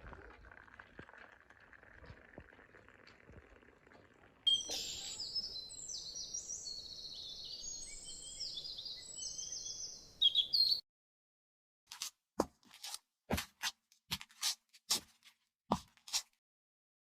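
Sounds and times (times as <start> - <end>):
birds chirping and trilling: 4.5 - 10.8.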